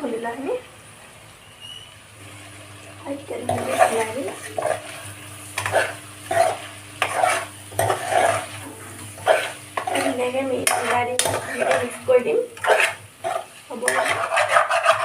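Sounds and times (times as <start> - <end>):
meat sizzling in a pan: 0.0 - 15.0
spatula scraping a pan: 3.3 - 15.0.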